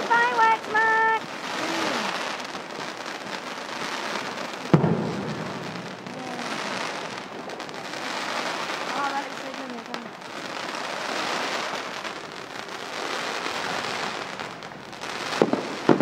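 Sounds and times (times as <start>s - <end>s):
fireworks crackling: 0.0s - 16.0s
firework bang: 3.9s - 10.0s, 13.1s - 16.0s.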